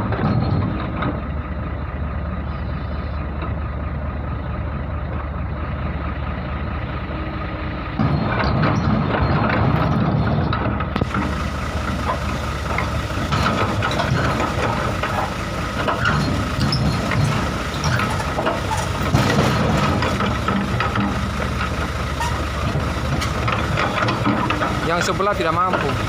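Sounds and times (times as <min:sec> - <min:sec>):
metallic clanks and knocks: 0:00.0 - 0:01.4, 0:08.0 - 0:26.0
excavator diesel engine under load: 0:00.0 - 0:26.0.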